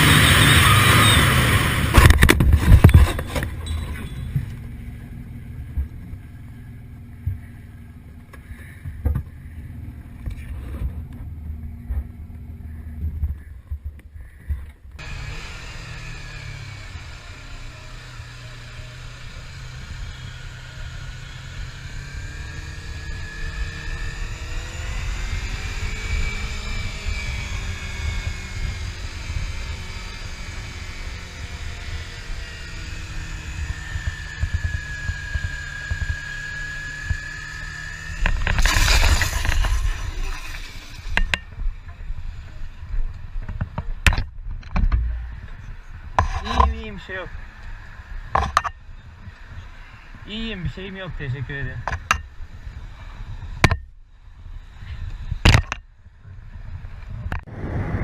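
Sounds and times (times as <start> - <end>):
motorcycle engine rumble: 0.0 - 58.0
wind rumble: 51.7 - 58.0.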